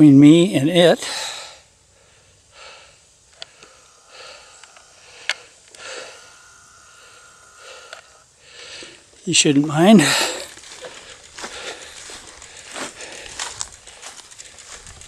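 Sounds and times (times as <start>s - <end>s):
man breathing hard: 1.0s - 9.2s, 9.8s - 14.8s
sharp clicks: 3.3s - 5.9s, 7.4s - 8.2s, 10.4s - 15.0s.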